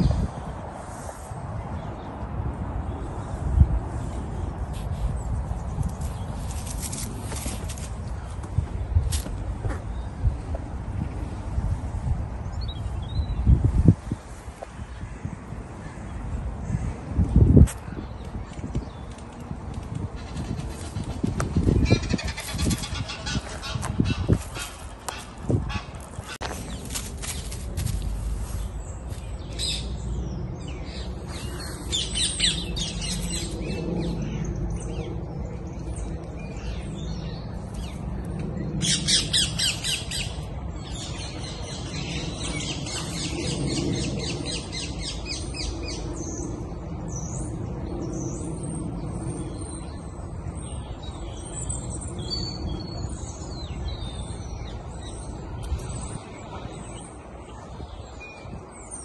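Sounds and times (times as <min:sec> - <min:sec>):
low outdoor rumble: 0:00.0 - 0:58.0
birds squawking and chirping: 0:20.0 - 0:59.0.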